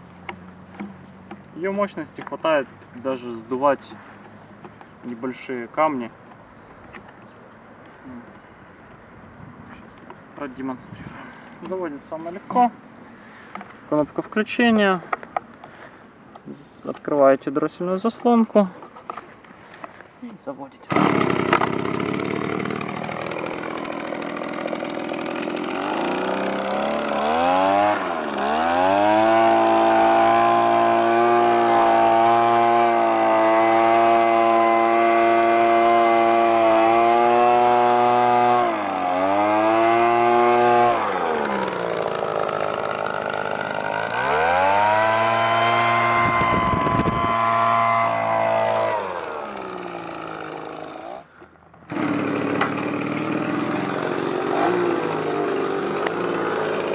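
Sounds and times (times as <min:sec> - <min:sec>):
blower engine revving: 0:20.9 - 0:51.3, 0:51.9 - 0:56.9.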